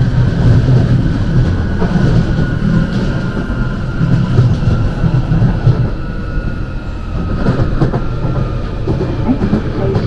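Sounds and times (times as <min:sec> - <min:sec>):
train wheels rumbling on track: 0:00.0 - 0:10.0
thin high whine: 0:00.8 - 0:08.8.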